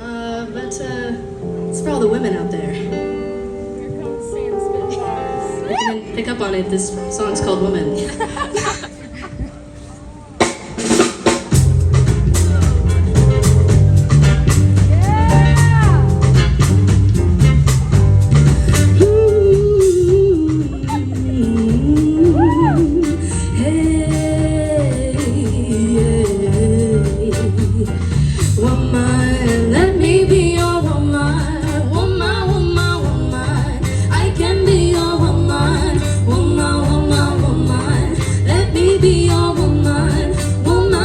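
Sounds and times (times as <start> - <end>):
person singing wordless melody: 0.0 - 10.4, 19.0 - 41.0
live band playing: 1.4 - 41.0.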